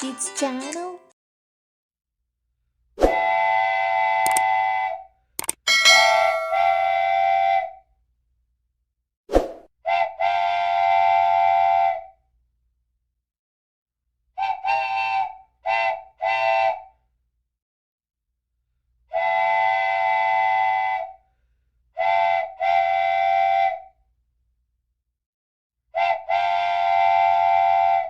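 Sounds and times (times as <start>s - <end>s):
sharp clicks: 5.4s - 5.7s
vehicle horn blasts: 5.9s - 7.2s.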